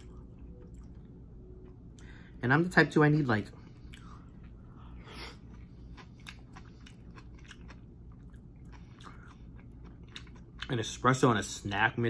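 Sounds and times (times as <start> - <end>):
close-up chewing: 5.2 - 10.7.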